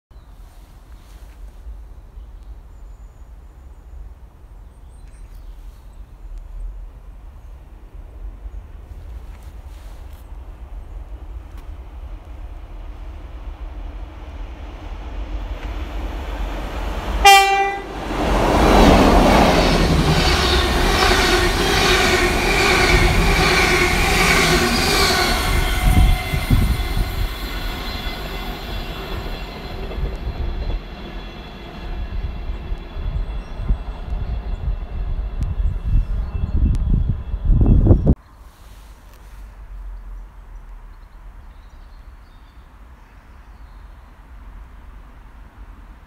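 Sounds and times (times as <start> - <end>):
train passing with rail noise: 0.3 - 46.0
train horn blast: 17.2 - 29.8.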